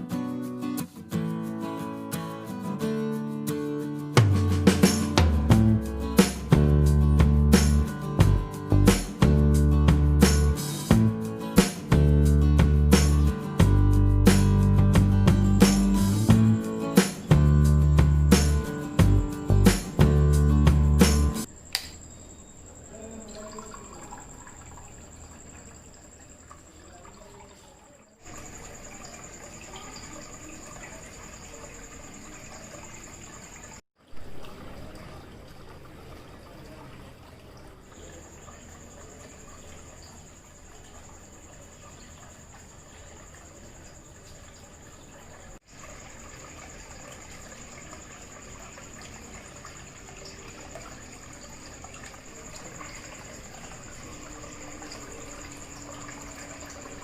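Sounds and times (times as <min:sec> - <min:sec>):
faint high tone: 0:22.3 - 0:24.9
water trickling and splashing: 0:22.6 - 0:57.0.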